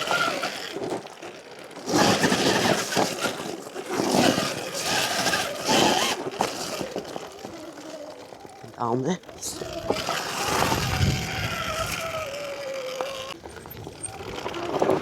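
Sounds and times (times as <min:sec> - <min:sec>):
electric motor whine: 0:00.0 - 0:15.0
tyres scrabbling on rock: 0:00.0 - 0:15.0.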